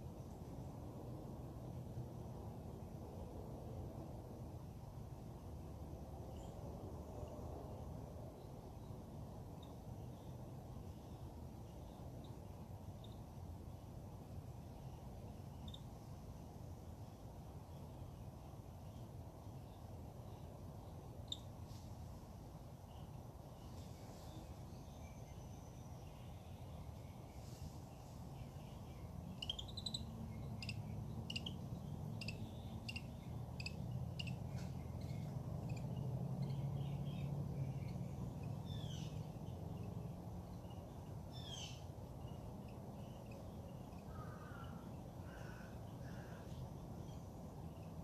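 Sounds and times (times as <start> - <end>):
steady low rumble: 0.0 - 45.2
wild birds calling: 41.3 - 46.7.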